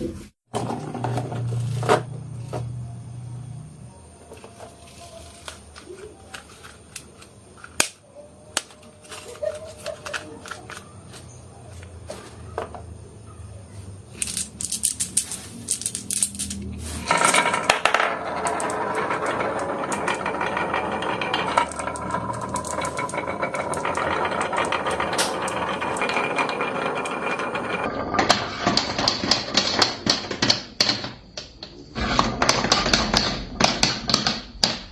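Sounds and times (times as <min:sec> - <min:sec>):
marbles rattling along a track: 0:14.1 - 0:34.4
marbles clicking and knocking: 0:14.1 - 0:34.8.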